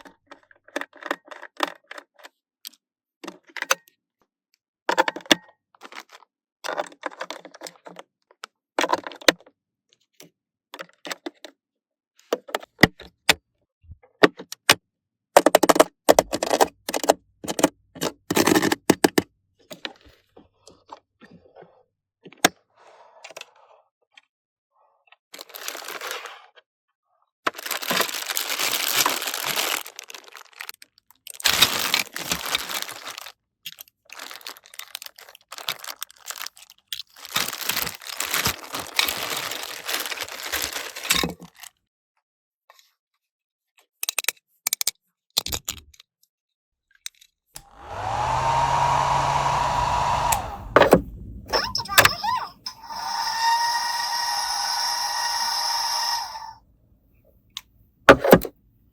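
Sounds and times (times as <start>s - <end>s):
packaging crinkling and tearing: 25.4s - 26.4s, 27.5s - 33.4s, 34.1s - 41.1s.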